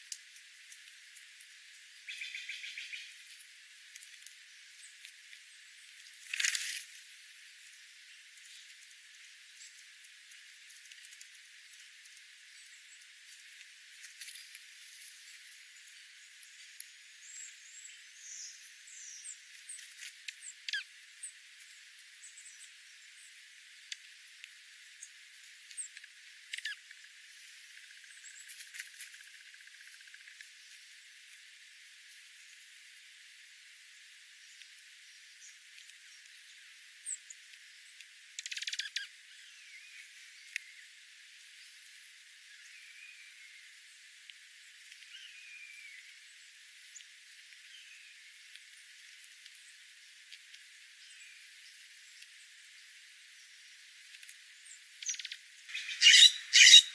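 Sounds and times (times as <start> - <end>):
faint hiss: 0.0 - 56.9
bird chirp: 2.0 - 3.2, 17.2 - 21.4, 38.4 - 40.9, 54.6 - 56.9
birds chirping and clicking: 25.0 - 27.0, 38.0 - 39.1, 55.0 - 56.9
downward-sweeping bird call: 55.7 - 56.9.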